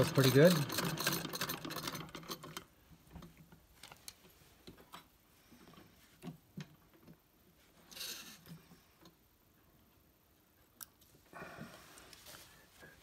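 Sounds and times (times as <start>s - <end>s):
sewing machine clicks and knocks: 0.0s - 3.3s
short rustle: 11.6s - 13.0s.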